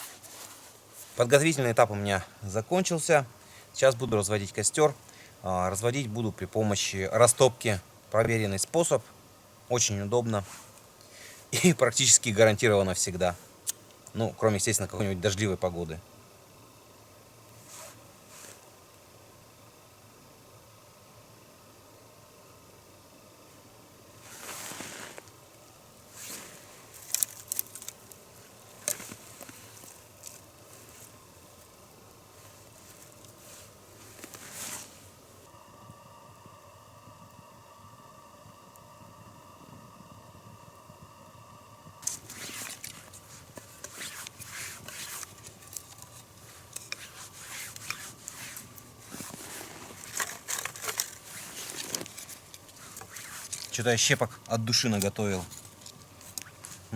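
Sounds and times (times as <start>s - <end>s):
hands rustling materials: 0.0s - 1.3s, 26.1s - 31.2s, 32.3s - 35.4s, 42.0s - 56.9s
sharp snaps and clicks: 13.6s - 14.2s
wood splinters scraping and rustling: 42.0s - 53.9s.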